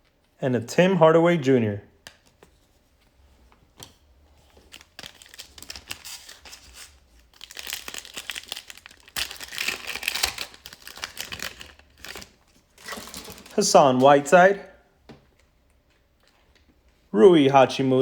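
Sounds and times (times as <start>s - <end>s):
plastic wrapper crinkling and tearing: 4.4s - 14.1s.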